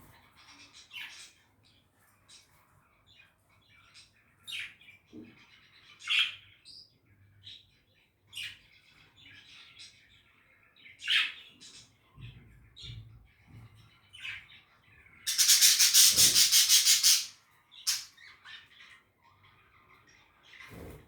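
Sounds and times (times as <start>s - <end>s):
budgerigar chirps and warbling: 15.3s - 18.1s
sharp budgerigar calls: 15.3s - 18.1s.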